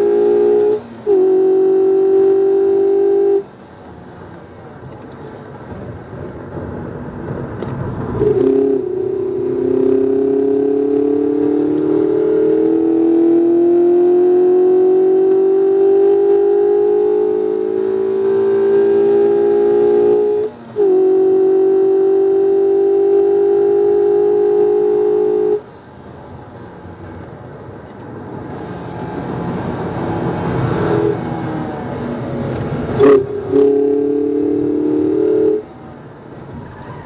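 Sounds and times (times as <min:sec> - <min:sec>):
car engine pulling under load: 0:00.0 - 0:37.0.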